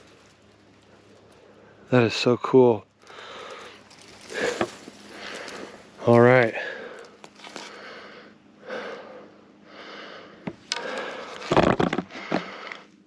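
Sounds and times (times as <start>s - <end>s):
rustling and crunching: 0.0s - 1.9s, 2.9s - 8.0s, 10.5s - 12.9s
person breathing: 3.0s - 5.9s, 6.5s - 11.5s, 12.1s - 12.9s.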